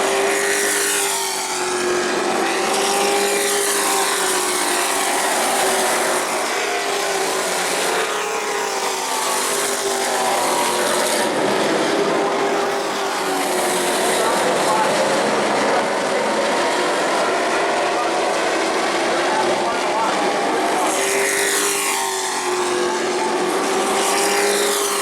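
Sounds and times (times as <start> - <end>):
racing truck engines: 0.0 - 25.0.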